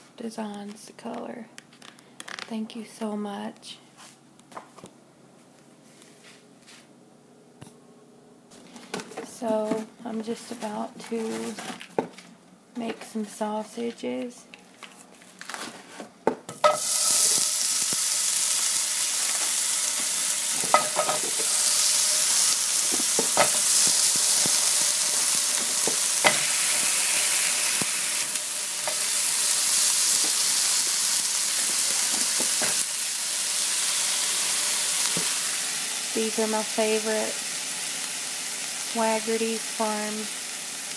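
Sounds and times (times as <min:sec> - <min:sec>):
sausages sizzling in pan: 0:16.5 - 0:40.9.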